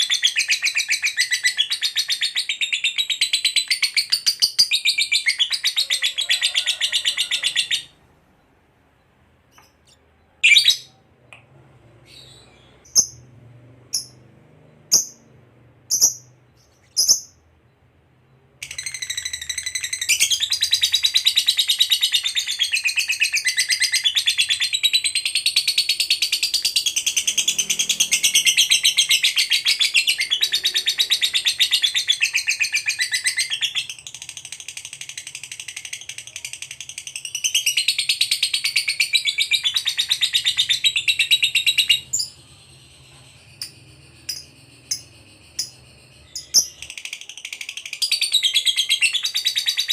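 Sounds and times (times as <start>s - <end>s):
lovebird chirps: 0.0s - 49.9s
lovebird chattering trill: 15.9s - 17.4s, 43.4s - 49.9s.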